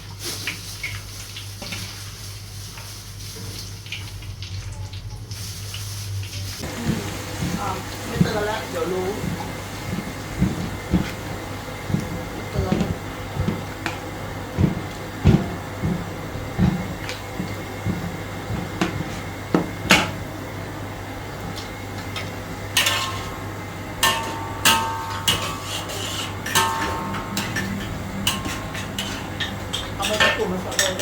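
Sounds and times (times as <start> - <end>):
low hum: 9.2 - 30.0
metal spatula scraping a wok: 22.8 - 23.4, 24.0 - 31.0.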